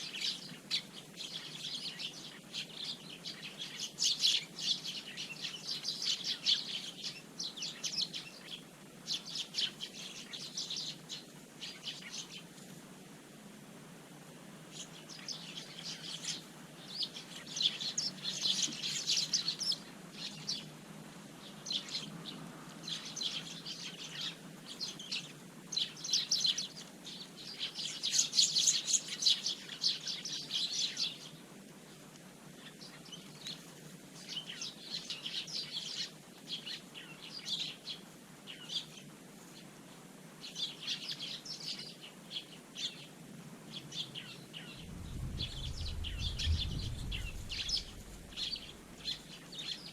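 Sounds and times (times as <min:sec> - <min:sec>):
sparrows chirping: 0:00.0 - 0:12.8, 0:14.7 - 0:20.7, 0:21.4 - 0:31.5, 0:32.6 - 0:39.7, 0:40.4 - 0:49.9
faint low hum: 0:43.9 - 0:49.9.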